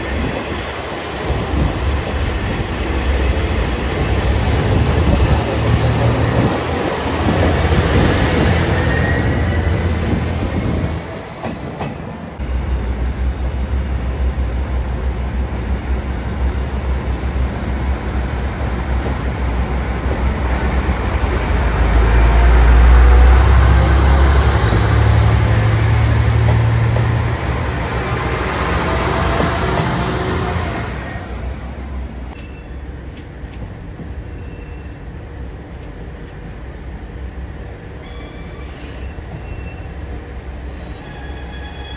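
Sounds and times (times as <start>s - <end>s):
wheels squealing on rails: 2.2s - 13.9s, 34.2s - 36.5s, 37.6s - 40.1s, 40.7s - 41.9s.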